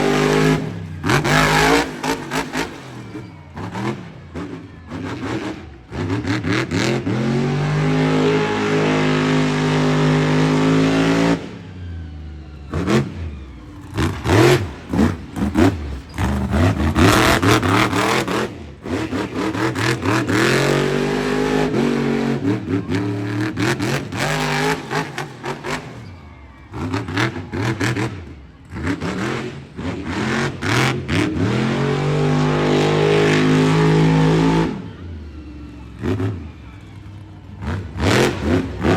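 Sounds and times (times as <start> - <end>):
truck engine revving hard: 0.0 - 38.9.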